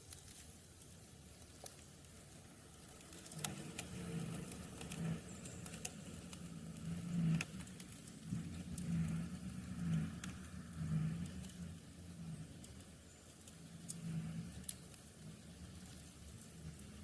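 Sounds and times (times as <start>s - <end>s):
passing road vehicle rumble: 2.7s - 17.0s.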